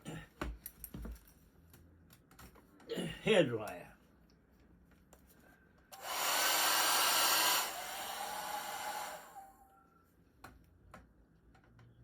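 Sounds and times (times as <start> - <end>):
hair dryer blowing: 6.0 - 9.4.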